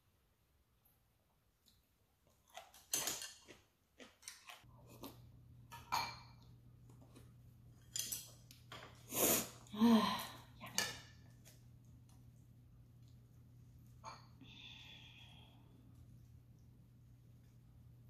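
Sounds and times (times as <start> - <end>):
faint steady low hum: 4.6 - 18.0.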